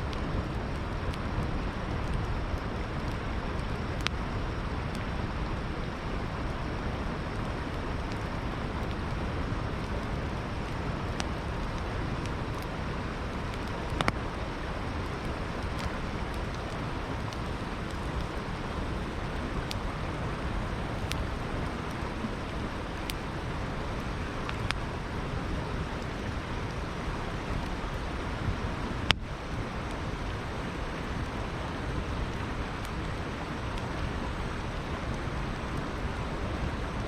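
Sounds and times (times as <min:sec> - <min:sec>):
river flowing: 0:00.0 - 0:37.0
campfire crackling pops: 0:00.1 - 0:37.0.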